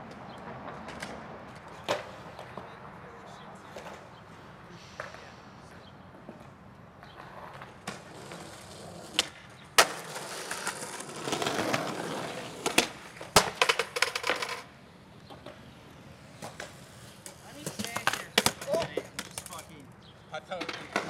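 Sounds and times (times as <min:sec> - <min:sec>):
skateboard wheels rolling on concrete: 0:00.0 - 0:21.0
skateboard clattering on ground: 0:00.1 - 0:02.7, 0:06.3 - 0:15.6, 0:16.4 - 0:19.8, 0:20.5 - 0:21.0
skateboard hard impacts: 0:07.1 - 0:14.7, 0:16.4 - 0:19.7, 0:20.5 - 0:21.0
skateboard cracking: 0:07.1 - 0:15.6, 0:16.3 - 0:19.9, 0:20.6 - 0:21.0.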